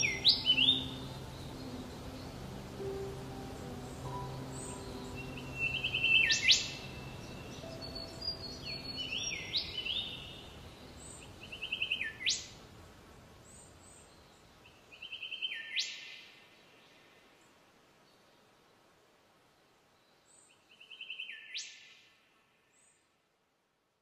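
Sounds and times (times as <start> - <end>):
soft background music: 0.0 - 11.8
songbird singing trills: 0.0 - 12.6.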